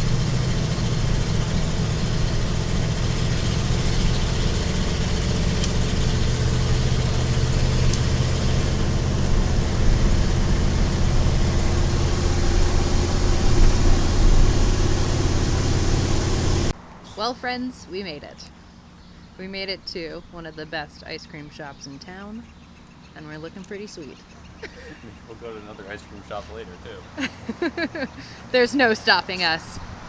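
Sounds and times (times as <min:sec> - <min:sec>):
truck engine running: 0:00.0 - 0:16.8.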